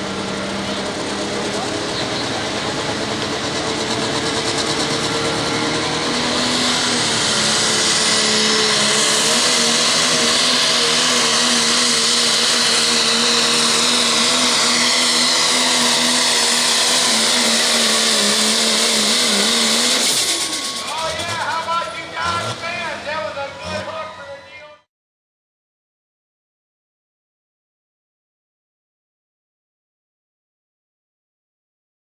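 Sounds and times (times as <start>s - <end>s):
diesel engine at full throttle: 0.0s - 24.9s.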